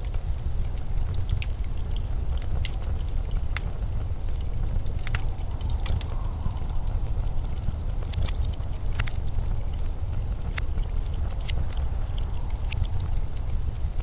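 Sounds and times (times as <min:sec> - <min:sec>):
blizzard wind rumbling: 0:00.0 - 0:14.0
sharp crackles and ticks: 0:00.0 - 0:14.0.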